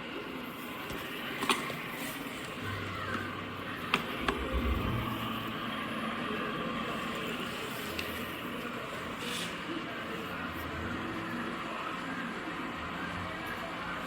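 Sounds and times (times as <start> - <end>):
brief low rumble: 4.2 - 5.8.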